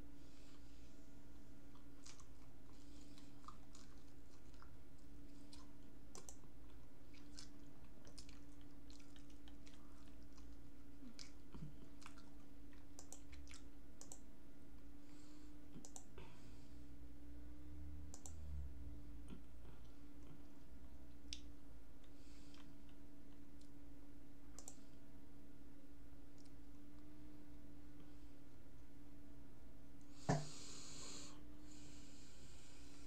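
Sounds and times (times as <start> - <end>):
steady low hum: 0.0 - 33.0
close-up chewing: 1.6 - 13.8
soft mouth clicks: 1.7 - 4.7, 5.5 - 14.2, 15.8 - 16.1, 21.1 - 23.8, 24.6 - 24.8.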